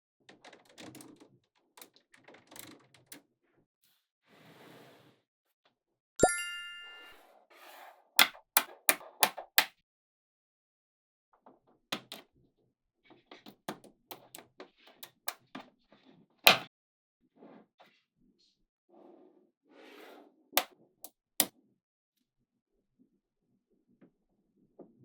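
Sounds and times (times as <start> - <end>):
magnetic balls clicking and snapping: 13.7 - 14.4, 15.0 - 15.4.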